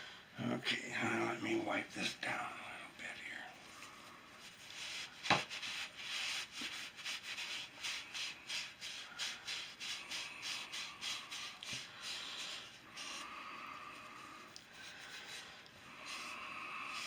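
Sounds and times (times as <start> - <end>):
hand rubbing wooden stick: 4.4 - 17.0.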